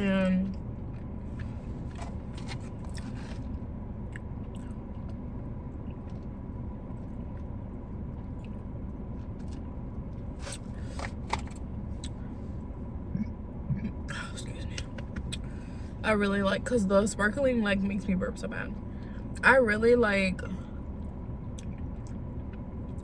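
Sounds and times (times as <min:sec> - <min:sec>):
low background rumble: 0:00.0 - 0:23.0
chewing and biting food: 0:00.9 - 0:12.2, 0:21.0 - 0:23.0.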